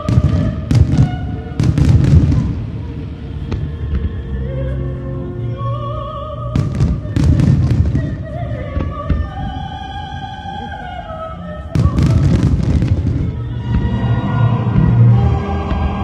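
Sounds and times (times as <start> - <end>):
fireworks booms and crackles: 0.0 - 4.2, 6.6 - 9.5, 11.8 - 16.0
music with sung voice: 0.0 - 16.0.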